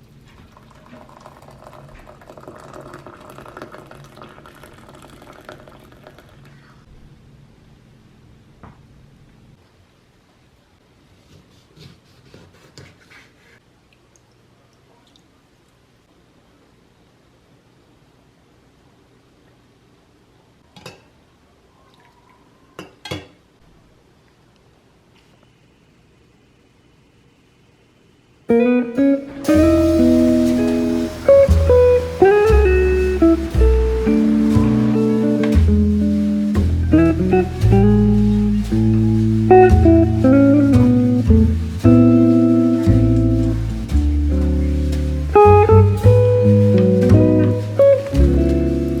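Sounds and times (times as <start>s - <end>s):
food crackling on stove: 0.2s - 6.4s, 28.5s - 49.0s
low steady hum: 25.5s - 49.0s.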